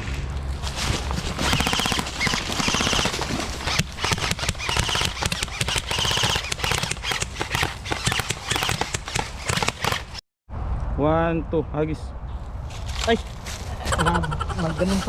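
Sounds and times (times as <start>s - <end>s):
airsoft guns firing: 1.4s - 10.2s.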